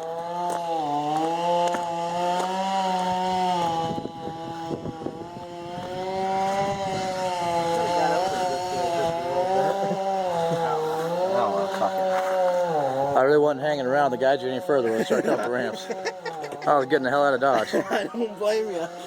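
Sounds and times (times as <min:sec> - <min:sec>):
small engine running at high revs: 0:00.0 - 0:19.0.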